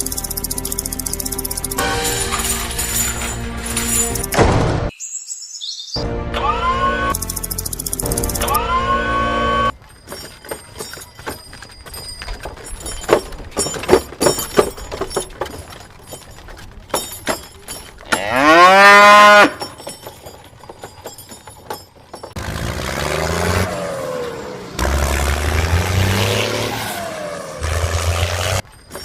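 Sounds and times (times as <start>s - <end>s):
bull mooing: 18.0s - 19.6s.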